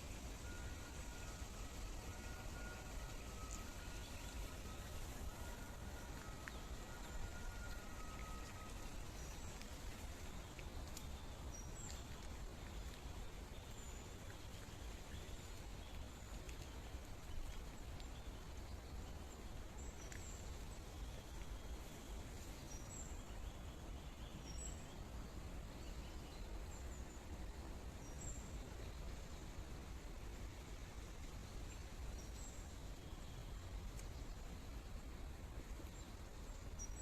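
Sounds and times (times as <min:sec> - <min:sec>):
flowing water rushing: 0:00.2 - 0:18.0.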